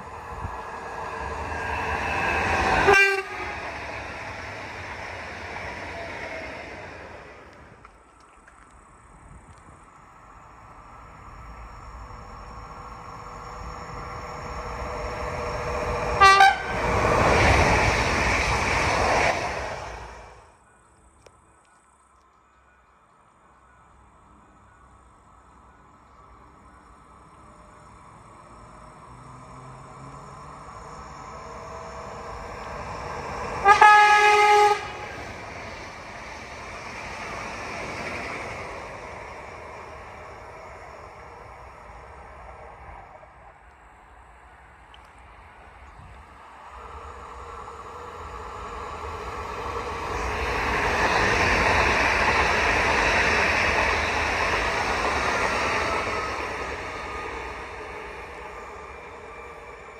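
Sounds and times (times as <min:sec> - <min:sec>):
train running noise: 0:00.0 - 0:59.9
wheels rumbling on rail: 0:00.0 - 0:59.9
train horn blasts: 0:02.8 - 0:03.8, 0:16.2 - 0:16.9, 0:33.6 - 0:35.2.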